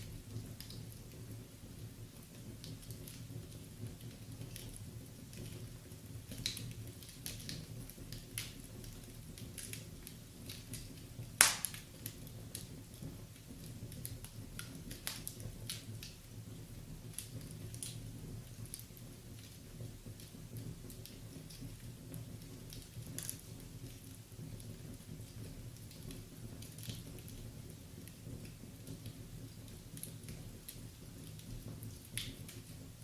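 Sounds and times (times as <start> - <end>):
low fire rumble: 0.0 - 33.0
wood fire crackling: 0.0 - 33.0
loud wood crack: 11.4 - 11.8.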